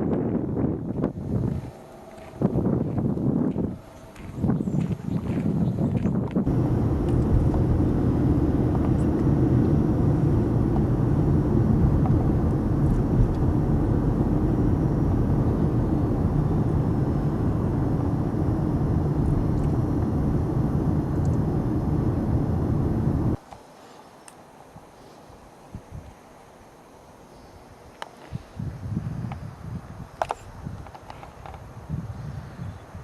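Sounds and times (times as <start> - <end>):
engine running steadily: 0.9 - 23.4.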